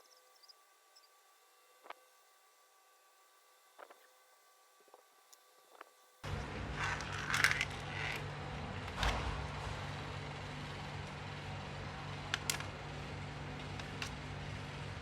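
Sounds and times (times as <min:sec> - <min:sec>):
steady low hum: 0:00.0 - 0:15.0
small hard parts clicking and scraping: 0:05.3 - 0:09.2, 0:12.2 - 0:12.8.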